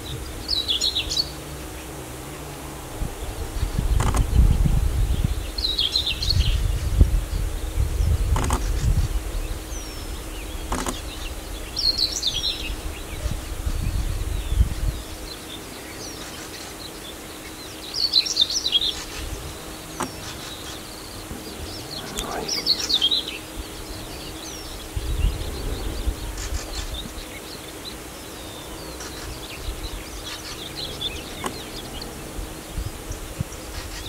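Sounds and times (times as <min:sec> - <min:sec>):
songbird singing: 0:00.0 - 0:34.0
sharp clicks: 0:04.0 - 0:04.4, 0:08.4 - 0:08.7, 0:10.7 - 0:11.0.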